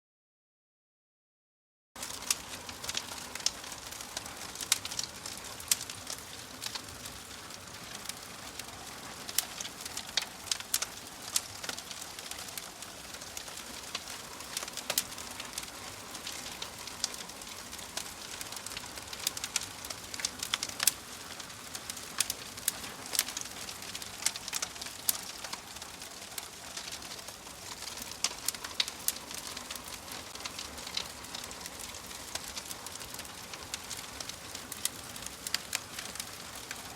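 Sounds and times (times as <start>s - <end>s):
fire crackling and popping: 2.0s - 36.9s.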